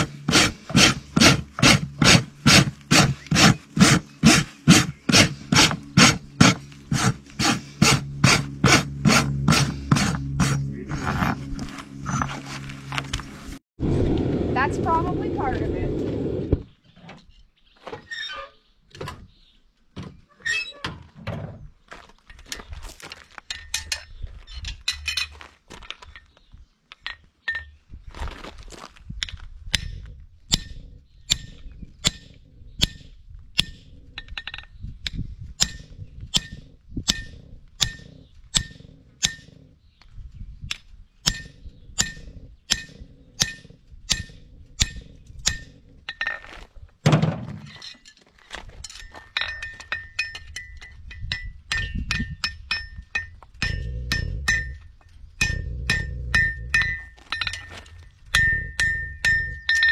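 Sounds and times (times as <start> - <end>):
hammer striking a horseshoe: 0.0 - 11.4, 29.7 - 39.6, 41.2 - 46.4, 48.8 - 59.9.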